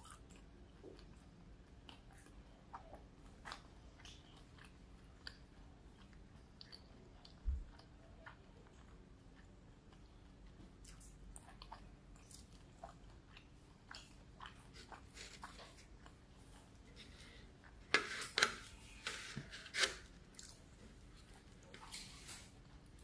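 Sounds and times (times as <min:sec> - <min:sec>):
chewing with wet mouth clicks: 0:00.0 - 0:17.0.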